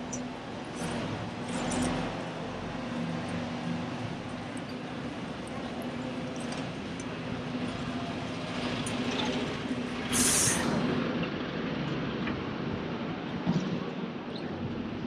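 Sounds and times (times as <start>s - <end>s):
heavy vehicle engine humming: 0.0s - 13.4s
city street traffic: 0.0s - 15.0s
air brake hiss: 10.1s - 10.8s.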